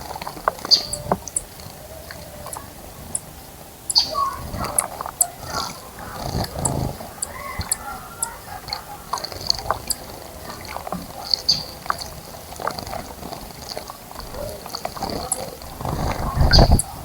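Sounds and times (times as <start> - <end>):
birds splashing in water: 0.0 - 17.0
high bird chirps: 3.9 - 5.4.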